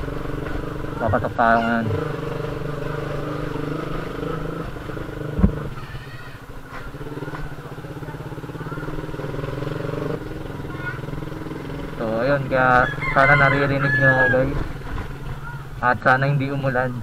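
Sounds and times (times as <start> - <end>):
motorcycle engine running: 0.0 - 17.0
loud thump: 5.4 - 5.7.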